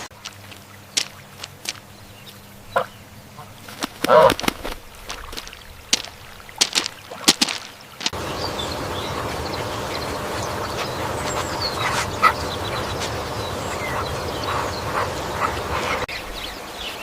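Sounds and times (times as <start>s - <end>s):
steady background noise: 0.0s - 16.7s
ducks quacking: 2.7s - 4.8s, 8.1s - 16.1s.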